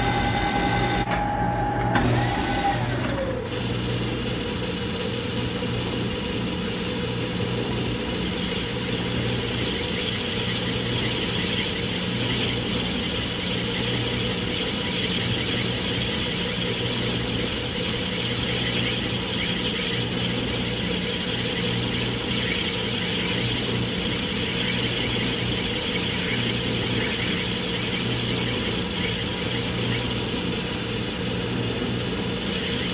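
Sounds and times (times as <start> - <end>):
thin high whine: 0.0 - 3.3
metal lathe running: 0.0 - 32.9.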